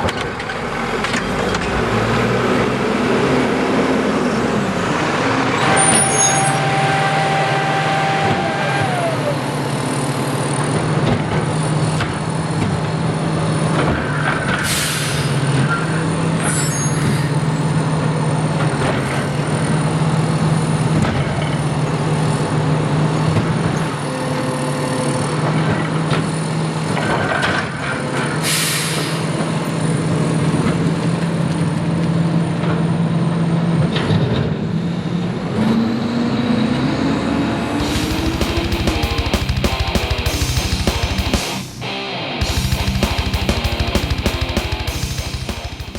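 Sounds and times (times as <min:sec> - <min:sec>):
air brake hisses: 0:05.6 - 0:09.4, 0:14.6 - 0:15.6, 0:28.4 - 0:29.4
diesel engine running: 0:37.8 - 0:45.9.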